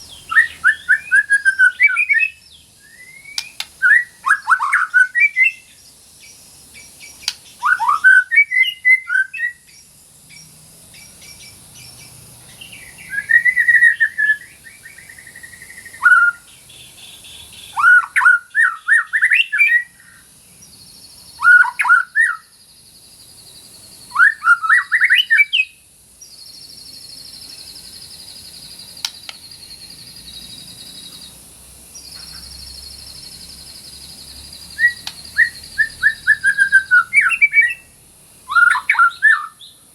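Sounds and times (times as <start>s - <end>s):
bird singing whistled phrases: 0.1s - 5.8s, 7.0s - 9.8s, 12.6s - 20.2s, 21.4s - 22.5s, 24.1s - 25.8s, 34.8s - 37.9s, 38.5s - 39.8s.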